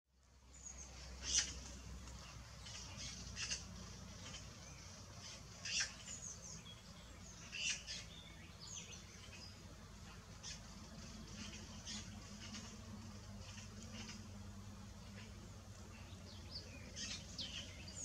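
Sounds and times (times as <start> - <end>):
low steady hum: 0.2 - 18.0
thin bird chirps: 0.5 - 9.6
high-pitched bird peeps: 5.2 - 6.3.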